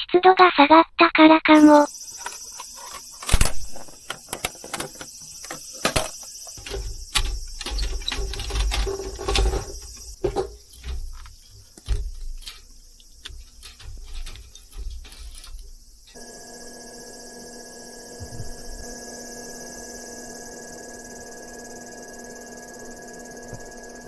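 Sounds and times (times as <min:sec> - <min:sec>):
insects chirping: 0:01.5 - 0:24.0
objects being handled: 0:01.6 - 0:16.2.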